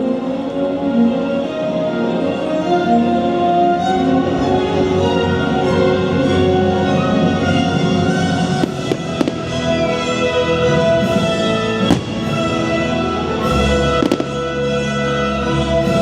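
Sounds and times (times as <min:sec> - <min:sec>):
orchestral music: 0:00.0 - 0:16.0
fireworks bursting: 0:08.4 - 0:10.2, 0:11.1 - 0:14.8.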